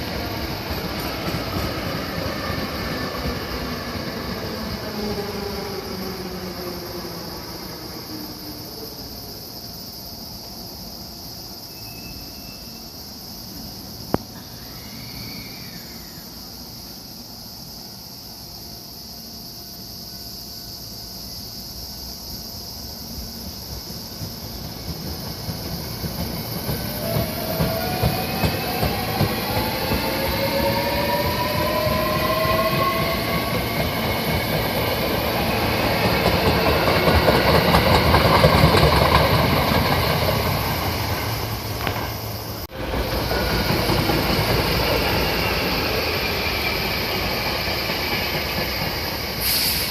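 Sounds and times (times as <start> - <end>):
train wheels clacking: 23.6 - 49.9.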